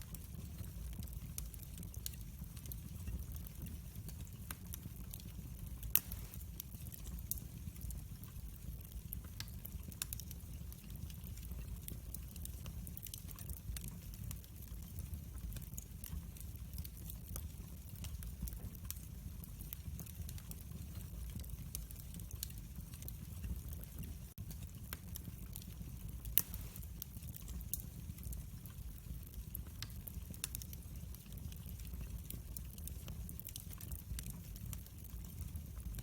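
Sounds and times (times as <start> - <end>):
wood fire crackling: 0.0 - 36.0
sharp pops from fire: 0.1 - 7.9, 24.4 - 28.4.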